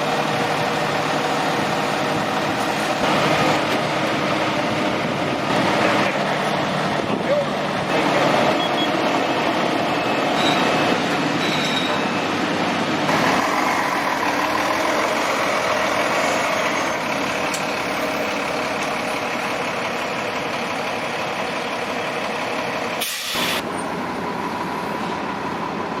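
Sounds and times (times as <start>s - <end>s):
diesel engines idling: 0.0s - 26.0s
short hiss: 23.0s - 23.6s.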